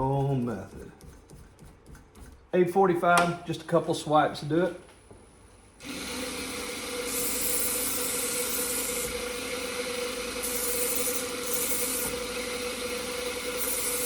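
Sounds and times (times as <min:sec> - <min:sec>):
belt sander humming: 0:05.8 - 0:14.0
knife grinding on sander belt: 0:05.9 - 0:14.0.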